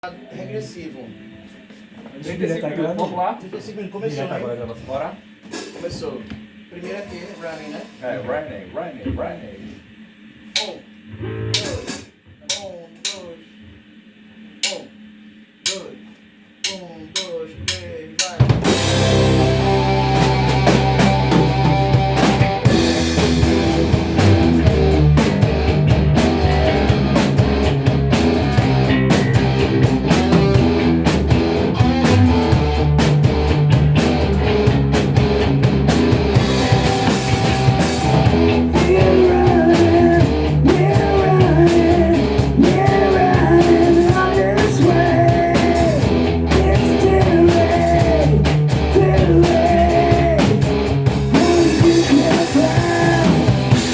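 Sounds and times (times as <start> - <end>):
drum kit: 10.5 - 53.9
bass guitar: 11.1 - 12.1, 18.5 - 53.9
count-in: 16.6 - 31.0
electric guitar: 18.6 - 53.9.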